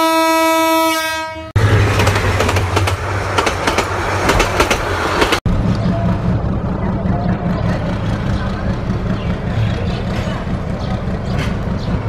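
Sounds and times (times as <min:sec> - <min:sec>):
train horn: 0:00.0 - 0:01.6.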